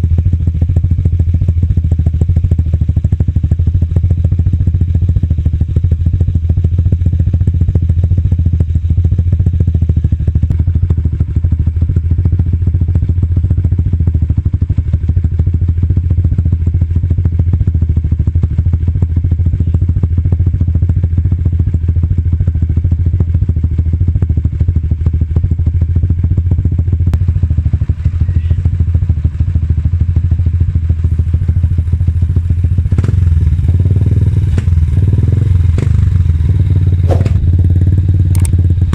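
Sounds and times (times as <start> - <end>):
motorcycle engine deep exhaust: 0.0 - 38.9.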